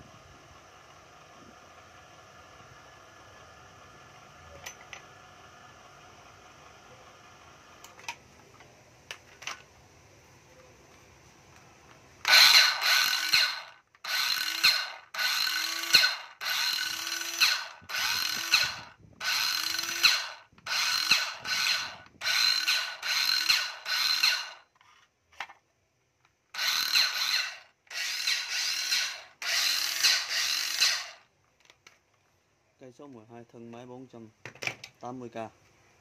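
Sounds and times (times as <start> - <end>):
cordless drill whining: 12.2 - 24.7, 26.5 - 31.3.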